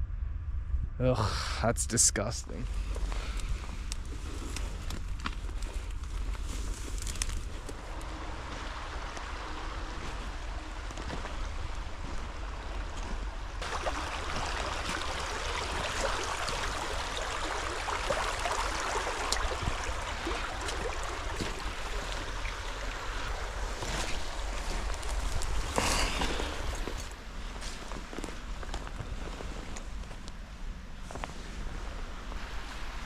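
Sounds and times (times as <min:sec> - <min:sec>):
low rumble: 0:00.0 - 0:32.1
water trickling and splashing: 0:02.8 - 0:30.2.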